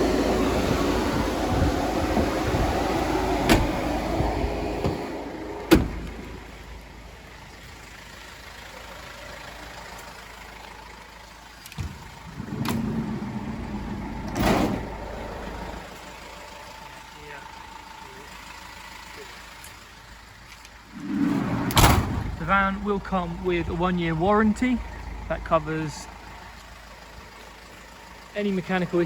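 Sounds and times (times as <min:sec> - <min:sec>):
van door slamming: 0:00.0 - 0:06.5, 0:11.8 - 0:15.7, 0:21.4 - 0:22.4
van engine humming: 0:00.0 - 0:29.0.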